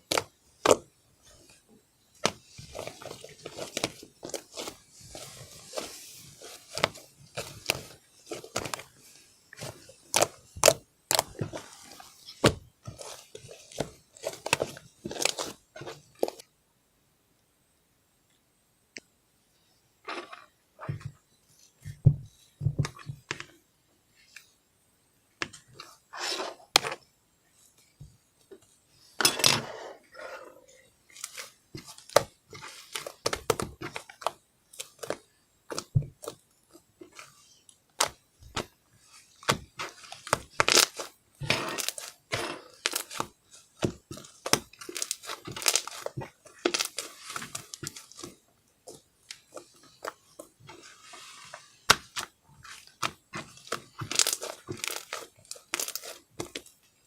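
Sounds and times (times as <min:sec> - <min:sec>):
thin sheet crinkling and tearing: 0:39.8 - 0:43.3, 0:44.1 - 0:48.3, 0:53.5 - 0:56.2.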